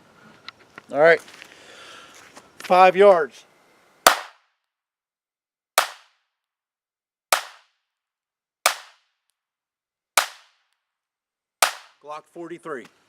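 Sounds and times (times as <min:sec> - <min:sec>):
pistol shots: 0:04.1 - 0:04.4, 0:05.8 - 0:06.1, 0:07.3 - 0:07.6, 0:08.7 - 0:09.0, 0:10.2 - 0:10.5, 0:11.6 - 0:12.0.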